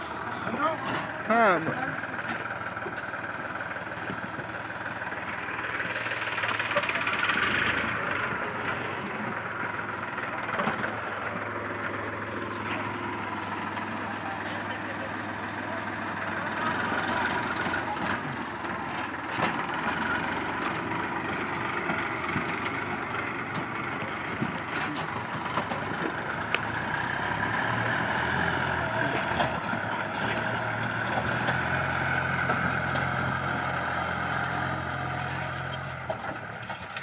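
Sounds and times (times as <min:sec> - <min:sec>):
diesel tractor engine running: 0:00.0 - 0:37.0.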